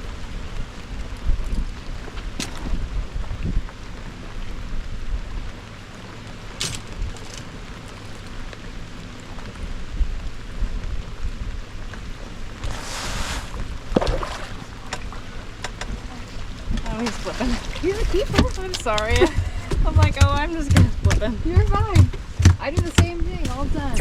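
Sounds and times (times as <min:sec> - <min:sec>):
rain: 0:00.0 - 0:24.0
wind buffeting microphone: 0:00.0 - 0:24.0
splash-like rush: 0:12.2 - 0:19.2.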